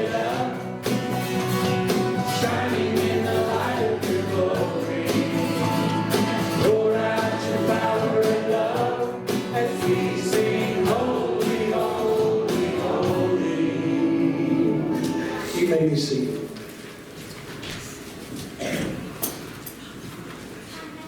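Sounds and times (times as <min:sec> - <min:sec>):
drums steady beat: 0:00.0 - 0:13.5
voices singing: 0:00.0 - 0:15.7
worship band playing: 0:00.0 - 0:17.2.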